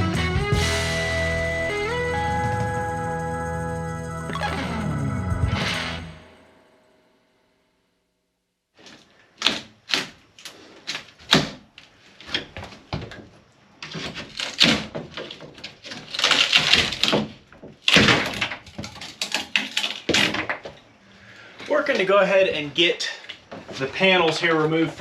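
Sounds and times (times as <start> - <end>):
panels scraping and tearing: 13.8 - 20.6.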